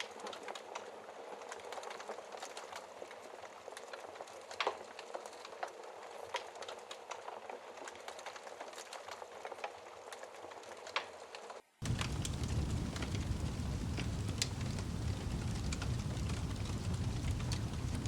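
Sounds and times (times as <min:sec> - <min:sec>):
wood fire crackling and popping: 0:00.0 - 0:18.0
hiss of flames: 0:11.8 - 0:18.0.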